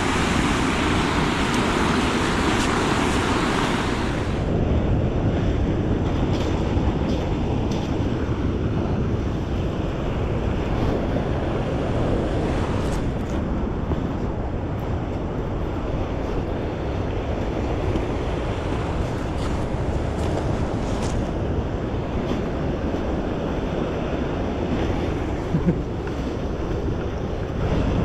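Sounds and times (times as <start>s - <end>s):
river water rushing: 0.0s - 4.5s
wind buffeting microphone: 0.0s - 28.0s.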